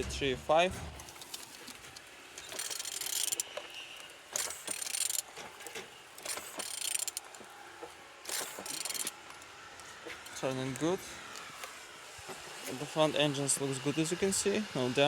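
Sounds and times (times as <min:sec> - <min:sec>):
engine turned over by hand: 0:00.0 - 0:03.6, 0:04.3 - 0:07.3, 0:08.2 - 0:09.1.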